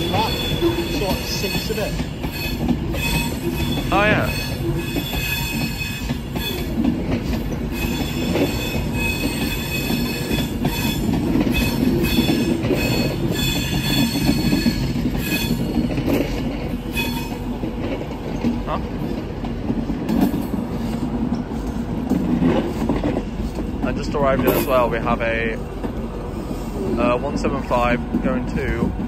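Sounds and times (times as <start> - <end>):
train wheels squealing: 0.0 - 6.8, 7.4 - 17.6
train rumble: 0.0 - 29.0.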